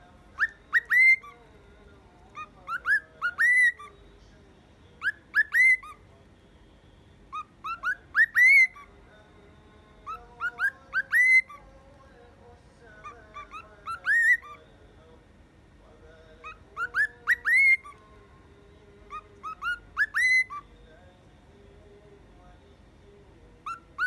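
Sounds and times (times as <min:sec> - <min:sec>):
cockatiel whistling: 0:00.4 - 0:01.4, 0:02.3 - 0:04.0, 0:05.0 - 0:06.0, 0:07.3 - 0:08.9, 0:10.0 - 0:11.6, 0:13.0 - 0:14.6, 0:16.4 - 0:18.0, 0:19.1 - 0:20.7, 0:23.6 - 0:24.0.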